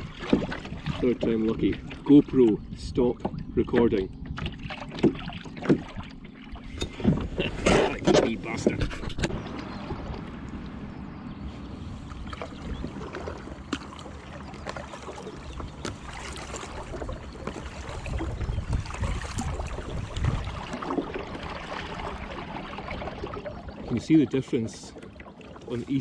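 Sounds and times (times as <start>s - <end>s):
small splashes and knocks: 0.0s - 10.8s, 12.1s - 26.0s
wind rumbling on microphone: 0.0s - 13.9s, 15.4s - 24.1s
water lapping against kayak: 0.0s - 26.0s.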